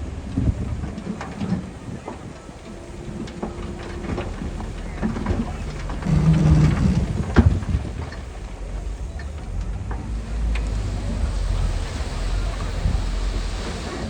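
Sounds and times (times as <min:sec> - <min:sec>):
heavy machinery engine rumble: 0:00.0 - 0:14.0
clanks and knocks: 0:03.2 - 0:08.6.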